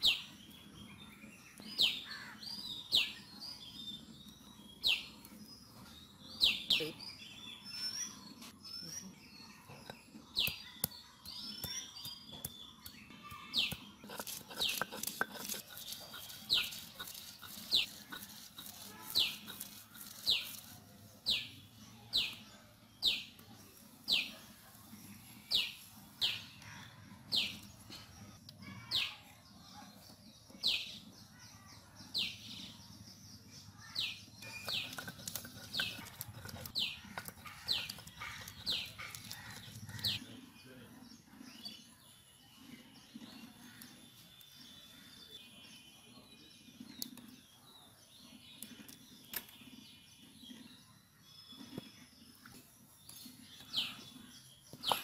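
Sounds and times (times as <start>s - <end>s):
stone roller grinding on stone: 13.6s - 21.1s, 34.2s - 40.2s.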